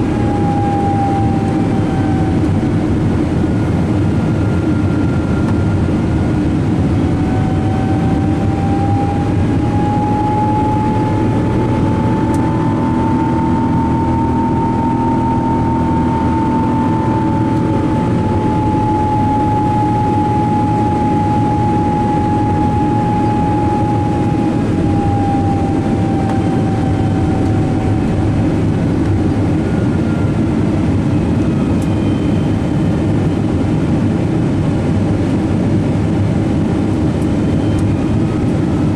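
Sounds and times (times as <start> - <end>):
faint rising and falling tone: 0.0 - 31.6
airliner engine drone: 0.0 - 38.9.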